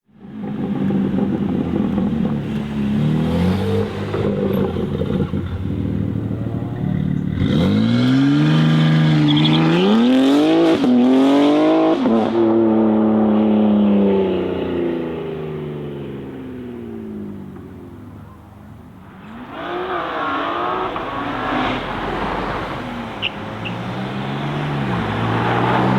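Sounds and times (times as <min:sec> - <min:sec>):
car engine revving and accelerating: 0:00.2 - 0:25.9.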